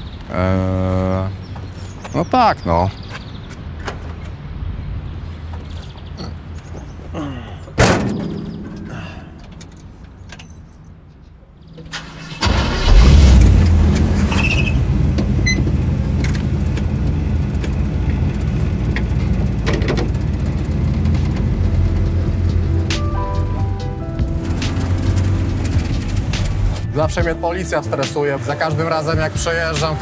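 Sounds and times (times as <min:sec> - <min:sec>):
car engine starting and idling: 0:11.7 - 0:27.3.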